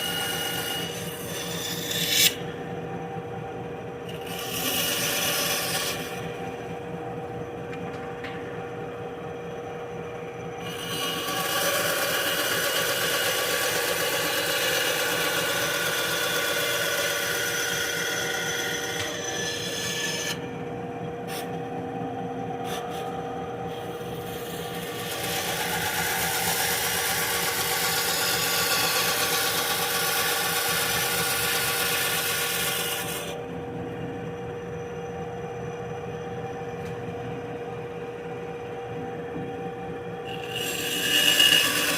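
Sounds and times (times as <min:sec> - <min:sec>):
bandsaw humming: 0:00.0 - 0:02.7, 0:04.0 - 0:06.6, 0:10.6 - 0:20.6, 0:22.6 - 0:33.4, 0:40.2 - 0:41.9
bandsaw cutting wood: 0:10.7 - 0:20.4, 0:24.9 - 0:33.3, 0:40.3 - 0:41.9.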